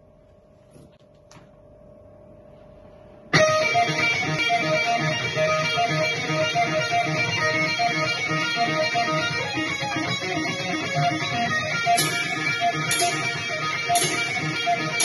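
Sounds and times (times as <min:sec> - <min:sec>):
low steady hum: 0:00.0 - 0:03.4
rock music with electric guitar: 0:03.4 - 0:15.0.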